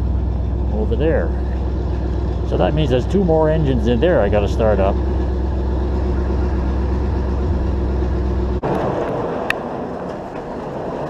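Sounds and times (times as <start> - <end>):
car engine running: 0.0 - 11.0
steady low noise: 0.0 - 11.0.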